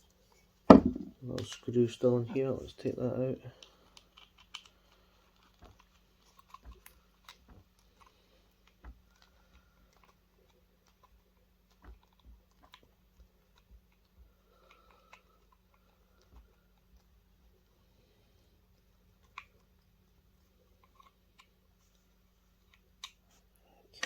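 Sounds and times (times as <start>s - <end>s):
plastic parts handled: 3.5s - 17.1s.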